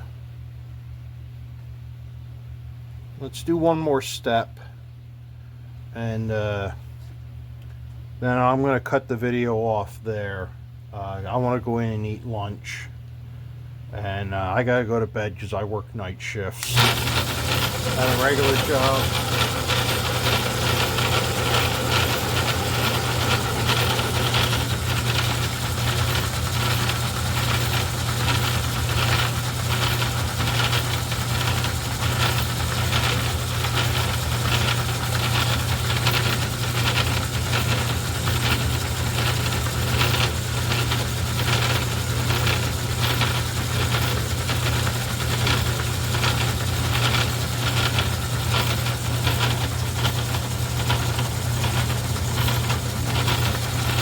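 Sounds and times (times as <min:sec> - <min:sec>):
fast rattle from drive: 0:16.6 - 0:54.0
lathe motor humming: 0:16.6 - 0:54.0.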